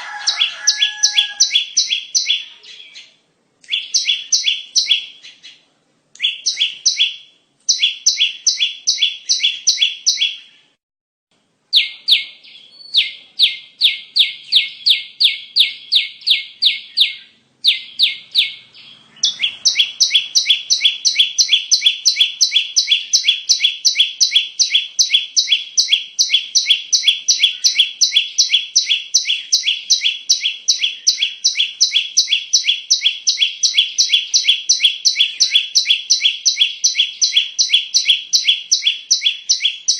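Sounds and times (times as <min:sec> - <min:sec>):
bird chirping song: 0:00.0 - 0:10.8, 0:11.7 - 0:39.9.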